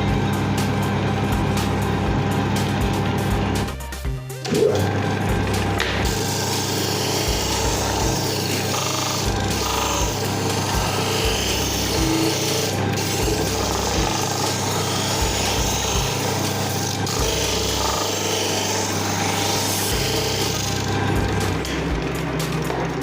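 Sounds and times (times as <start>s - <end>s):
electric sander sanding wood: 4.7s - 23.0s.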